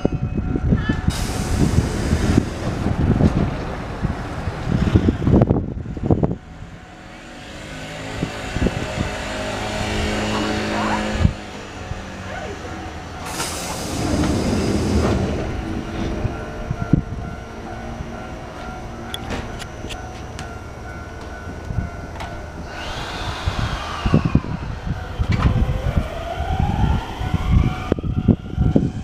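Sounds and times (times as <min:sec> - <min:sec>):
rough low train rumble: 0:00.0 - 0:29.0
train equipment hum: 0:00.0 - 0:29.0
clunk: 0:19.1 - 0:20.5.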